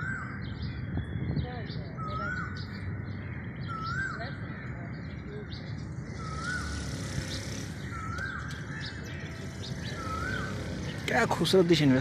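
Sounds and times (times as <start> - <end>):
scratchy bird calls: 3.8 - 12.0
whistled bird call: 6.1 - 8.6, 9.8 - 10.9.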